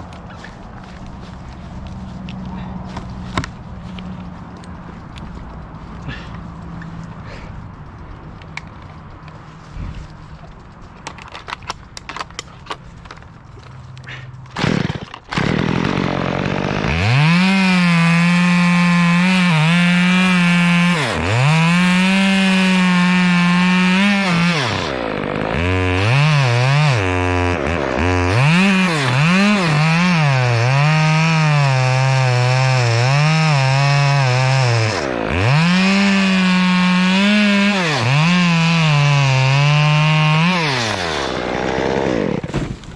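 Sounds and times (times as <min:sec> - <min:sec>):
chainsaw cutting wood: 0:14.5 - 0:42.9.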